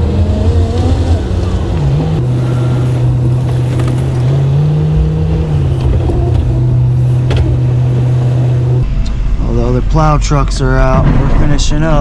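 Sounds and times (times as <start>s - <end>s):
truck engine running: 0.0s - 8.8s.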